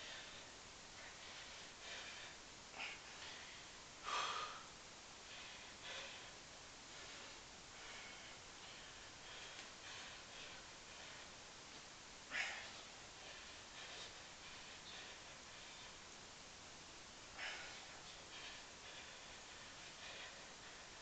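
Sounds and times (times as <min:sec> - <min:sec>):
man breathing hard: 0:00.0 - 0:21.0.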